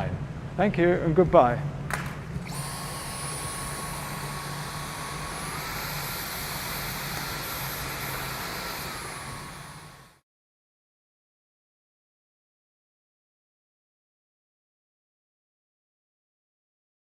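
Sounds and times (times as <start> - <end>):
cordless vacuum motor whining: 2.4 - 10.2.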